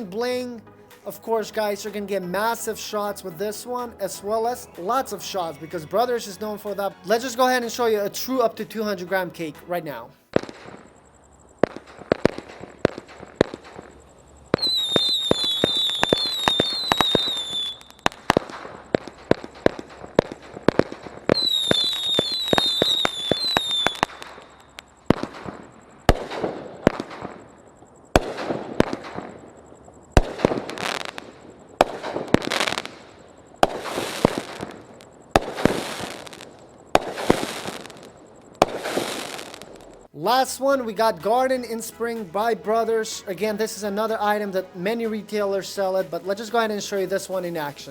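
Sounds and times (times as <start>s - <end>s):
shrill firework whistling: 10.2s - 40.8s
fireworks firing rapid shots: 10.3s - 11.0s, 11.6s - 27.5s, 28.1s - 40.1s
firework bursts with crackling tails: 10.3s - 42.4s.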